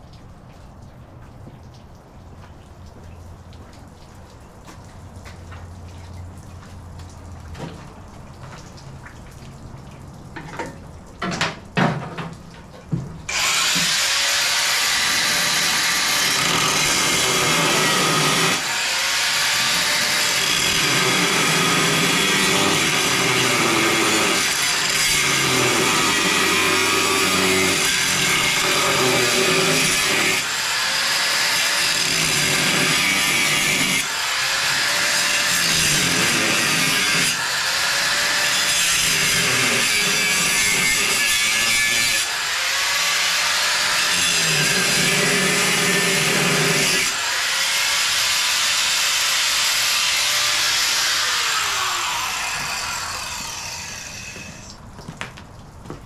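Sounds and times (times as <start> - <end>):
power tool cutting metal: 13.3 - 54.7.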